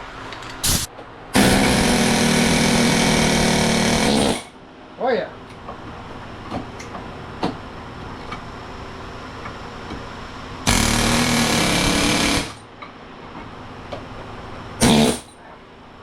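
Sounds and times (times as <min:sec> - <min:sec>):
air hammer bursts: 0:00.6 - 0:04.5, 0:10.7 - 0:12.6, 0:14.8 - 0:15.4.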